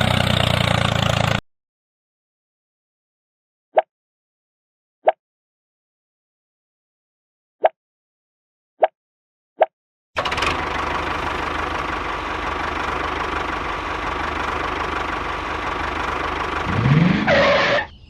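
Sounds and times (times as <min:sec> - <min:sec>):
engine rattling: 0:00.0 - 0:01.4, 0:10.2 - 0:17.9.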